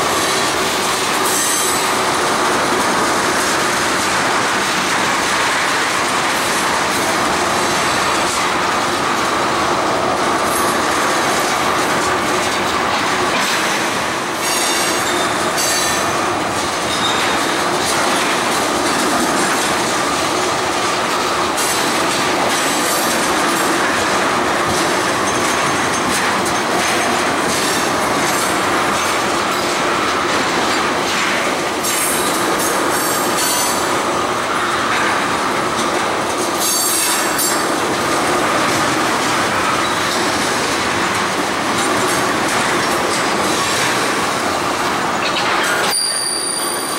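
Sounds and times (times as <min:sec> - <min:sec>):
train wheels rumbling on rail: 0:00.0 - 0:46.9
high-pitched wheel squeals: 0:45.3 - 0:46.9.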